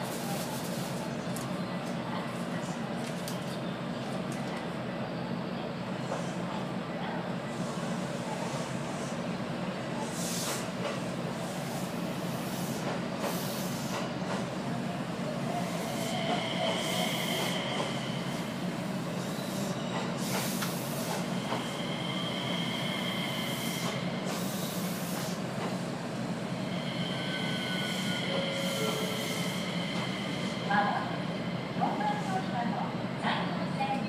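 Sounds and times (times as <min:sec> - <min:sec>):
train wheels squealing: 0:15.6 - 0:18.5, 0:21.4 - 0:24.9, 0:26.6 - 0:30.7.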